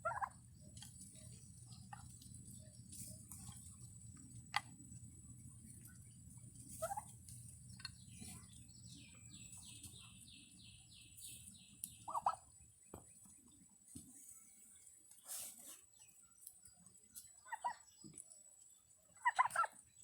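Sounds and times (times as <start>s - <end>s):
turkeys calling: 0.0s - 4.8s, 5.5s - 13.4s, 17.4s - 18.2s, 19.1s - 20.0s.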